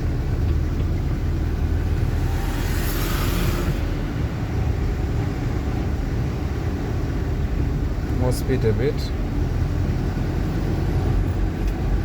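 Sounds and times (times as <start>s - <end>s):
truck engine rumbling: 0.0s - 12.0s
brief hiss: 1.6s - 5.2s.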